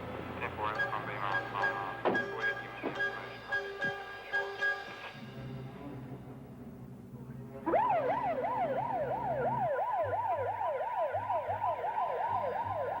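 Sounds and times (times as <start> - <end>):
emergency siren yelping: 7.7 - 13.0.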